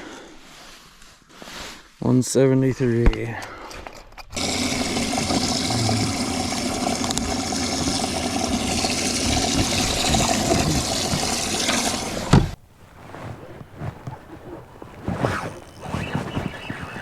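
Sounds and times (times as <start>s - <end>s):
motor hum: 4.4s - 17.0s
water rushing: 4.4s - 17.0s
thump: 12.2s - 12.6s.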